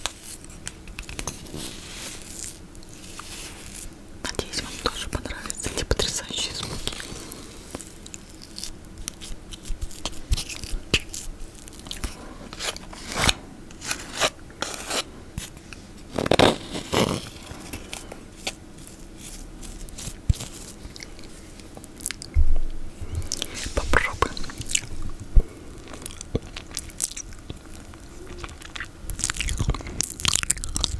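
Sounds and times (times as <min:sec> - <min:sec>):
mouth eating sticky food: 0:23.0 - 0:30.9.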